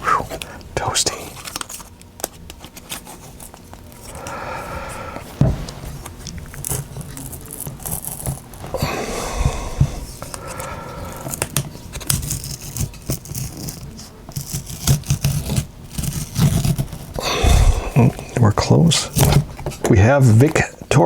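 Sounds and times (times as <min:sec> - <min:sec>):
adhesive tearing: 0:06.3 - 0:08.8, 0:10.2 - 0:18.4
pry tool scraping: 0:09.8 - 0:18.4.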